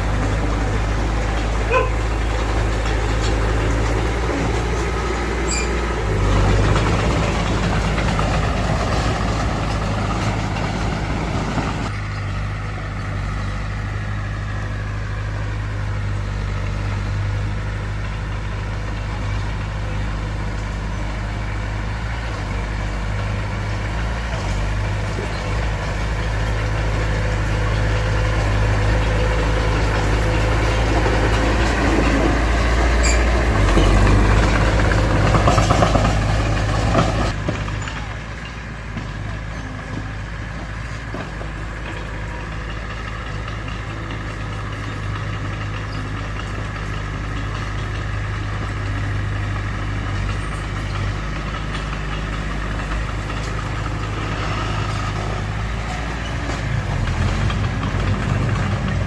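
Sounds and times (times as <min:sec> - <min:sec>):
diesel engine of heavy machinery: 0:00.0 - 0:59.0.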